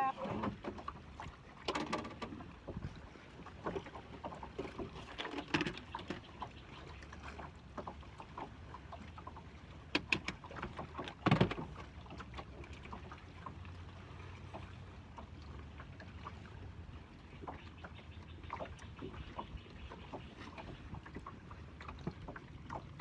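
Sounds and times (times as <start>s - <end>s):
clicks and clatter of tackle: 1.6s - 2.4s.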